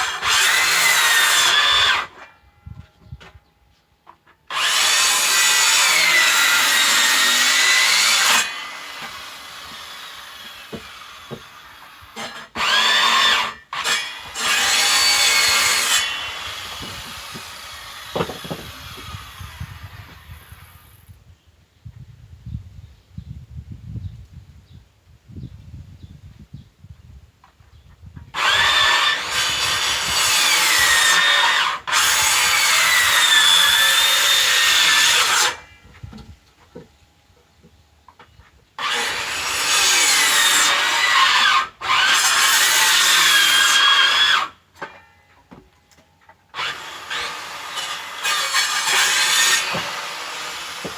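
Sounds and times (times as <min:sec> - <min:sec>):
electric saw cutting wood: 0:00.0 - 0:02.3, 0:04.5 - 0:20.7, 0:28.3 - 0:35.7, 0:38.8 - 0:44.6, 0:46.5 - 0:50.9.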